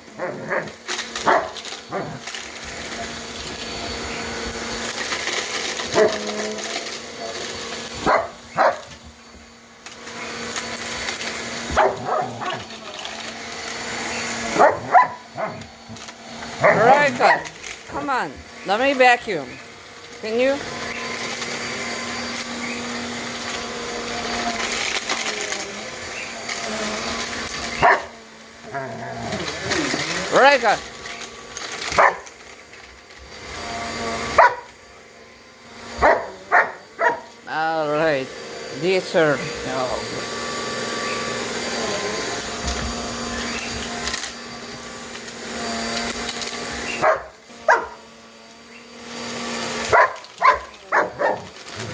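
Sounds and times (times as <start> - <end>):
vacuum cleaner running: 0.0 - 51.9
dog barking: 0.2 - 2.2, 5.9 - 6.2, 8.0 - 8.9, 11.7 - 12.6, 14.6 - 15.7, 16.6 - 17.5, 27.8 - 28.1, 31.9 - 32.2, 34.4 - 34.7, 36.0 - 37.3, 47.0 - 48.0, 49.9 - 51.5.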